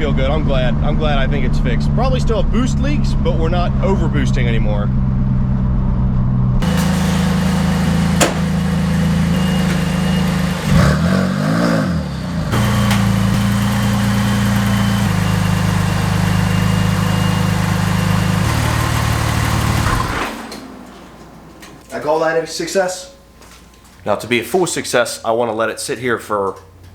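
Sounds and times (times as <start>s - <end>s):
car engine running: 6.6s - 21.8s.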